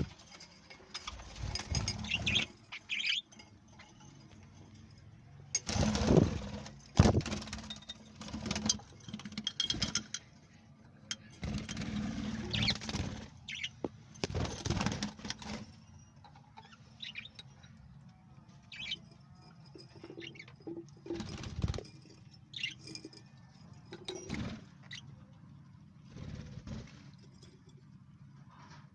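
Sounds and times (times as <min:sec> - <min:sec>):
parrots chirping: 0:01.7 - 0:03.4, 0:13.5 - 0:13.8, 0:15.8 - 0:17.6, 0:18.7 - 0:19.1
wings flapping and rustling: 0:05.6 - 0:10.1, 0:11.4 - 0:15.8, 0:19.8 - 0:22.8, 0:26.0 - 0:27.3.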